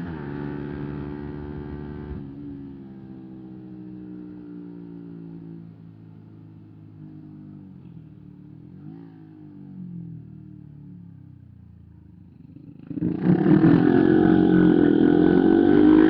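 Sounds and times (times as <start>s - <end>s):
motorcycle engine revving: 0.0s - 2.3s, 12.4s - 16.0s.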